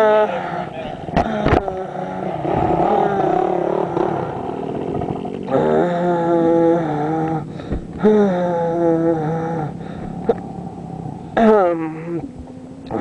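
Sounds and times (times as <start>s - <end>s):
dirt bike engine shifting gears: 1.1s - 6.4s.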